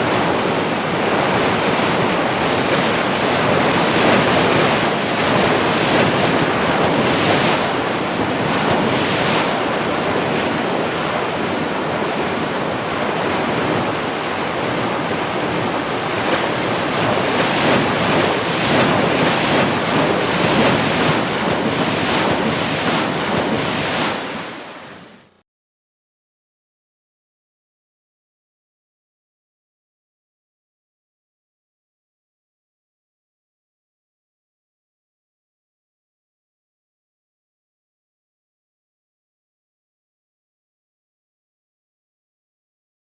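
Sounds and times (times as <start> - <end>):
ocean surf breaking waves: 0.0 - 25.4.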